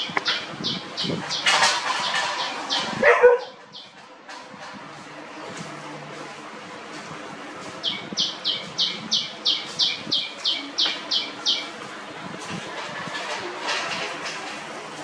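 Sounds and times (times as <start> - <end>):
bird chirping: 0.0 - 3.0, 7.8 - 11.7.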